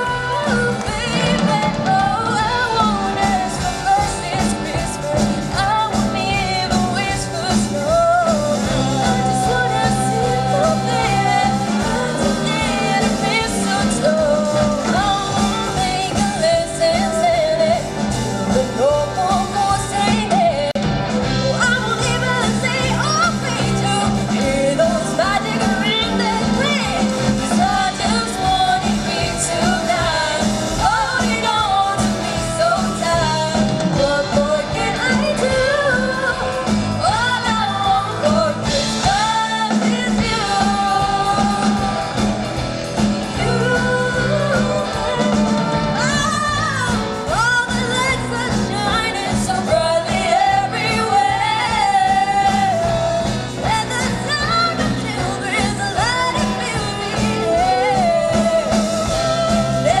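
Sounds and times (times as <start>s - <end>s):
person singing: 0.0s - 60.0s
rock band playing live: 0.0s - 60.0s.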